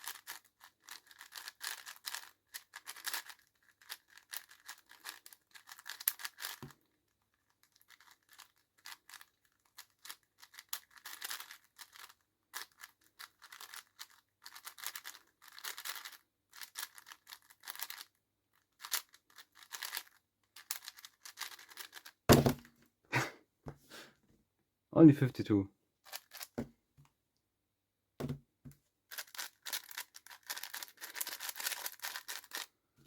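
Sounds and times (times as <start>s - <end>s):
puzzle cube plastic clicking: 0.0s - 22.2s, 26.1s - 26.6s, 29.1s - 32.7s
loud thump: 22.3s - 22.7s.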